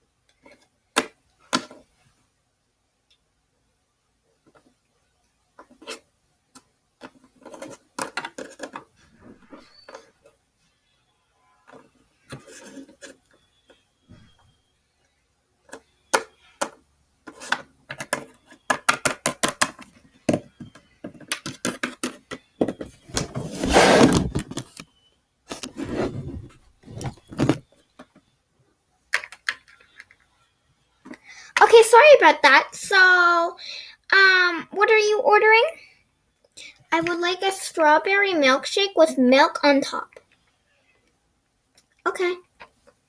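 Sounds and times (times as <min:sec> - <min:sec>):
plastic toys clicking and knocking: 0:05.6 - 0:09.0, 0:15.6 - 0:22.9, 0:29.1 - 0:30.4
plastic pieces scraping rustle: 0:25.5 - 0:27.7.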